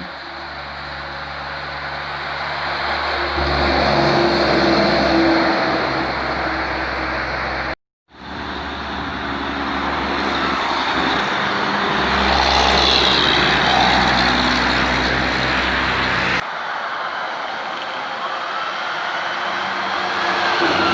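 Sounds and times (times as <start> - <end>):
diesel truck engine running: 0.0 - 16.4
high engine whine: 0.0 - 16.5.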